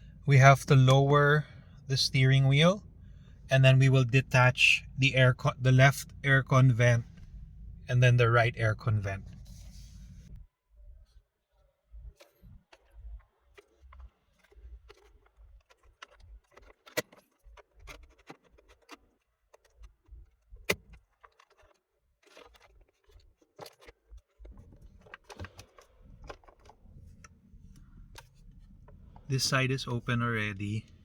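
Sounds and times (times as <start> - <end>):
clicks and rattles of car trim: 12.2 - 30.0.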